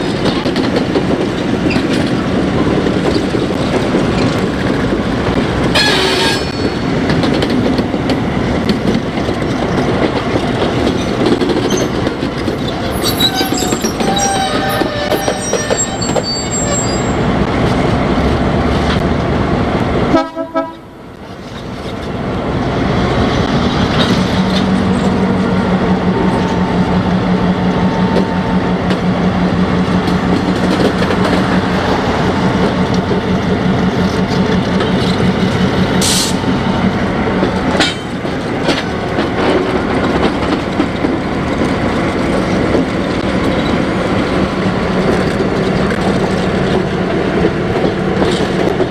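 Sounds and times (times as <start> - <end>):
train running: 0.0 - 48.9.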